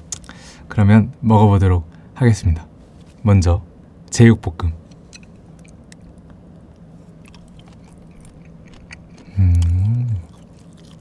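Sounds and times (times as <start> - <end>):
man chewing: 4.9 - 11.0
man humming mmm: 9.2 - 10.4.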